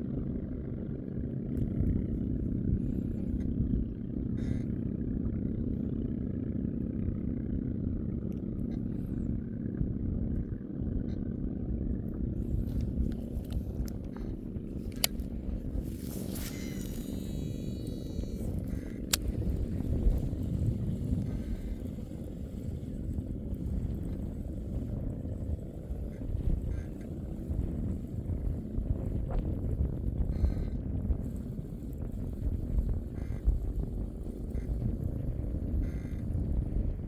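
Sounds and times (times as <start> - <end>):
small boat engine running: 0.0 - 37.0
sharp clicks: 12.7 - 20.3.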